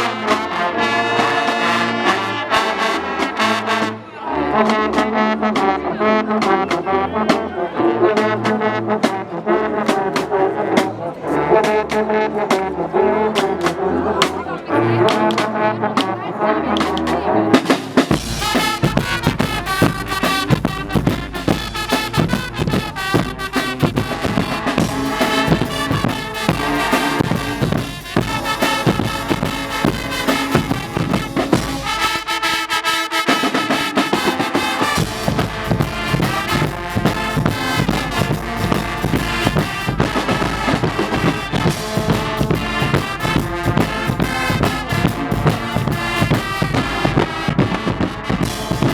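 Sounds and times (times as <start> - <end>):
brass trumpets and trombones: 0.0 - 48.9
bass drum and drums beat: 17.6 - 32.3, 33.6 - 48.9.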